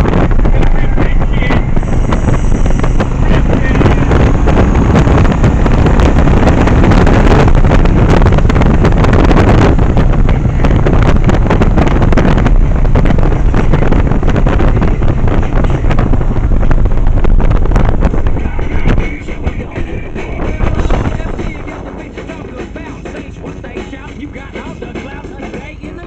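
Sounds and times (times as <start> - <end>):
wind buffeting microphone: 0.0 - 25.8
motorcycle engine running: 0.0 - 26.0.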